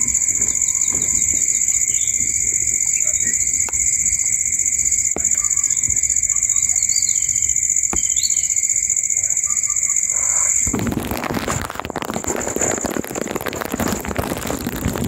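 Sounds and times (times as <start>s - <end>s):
bird chirps: 0.0s - 10.7s
insect chorus trilling: 0.0s - 15.0s.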